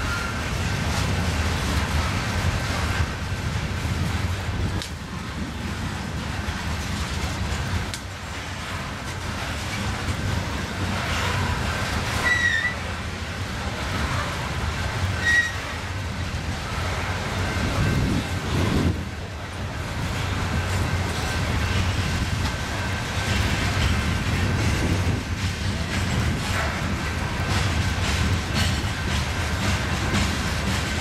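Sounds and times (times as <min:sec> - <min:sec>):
freight train cars rumbling: 0:00.0 - 0:31.0
high wheel squeals: 0:12.2 - 0:12.9, 0:15.2 - 0:15.8.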